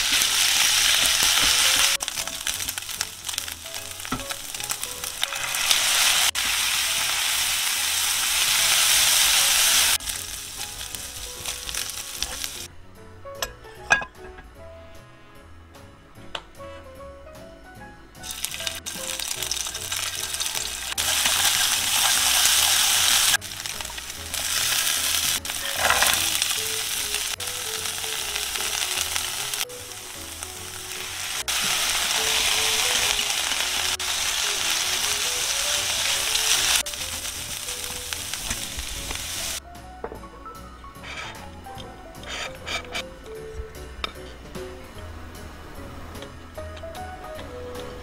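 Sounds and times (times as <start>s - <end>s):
stir-fry sizzling in hot oil: 0.0s - 12.7s, 18.2s - 39.6s.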